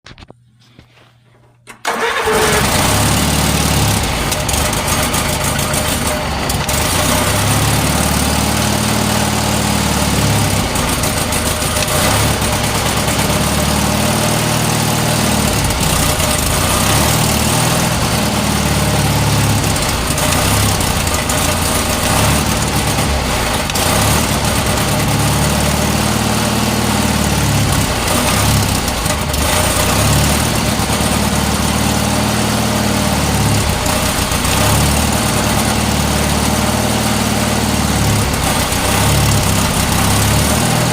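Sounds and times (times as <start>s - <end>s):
tractor engine idling: 1.8s - 40.9s.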